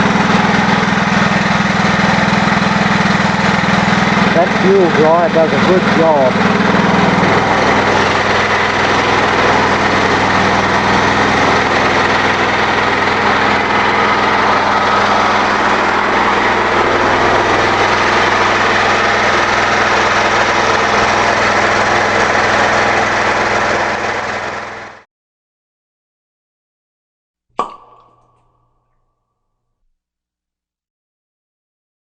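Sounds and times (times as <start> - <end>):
small engine running: 0.0 - 25.1.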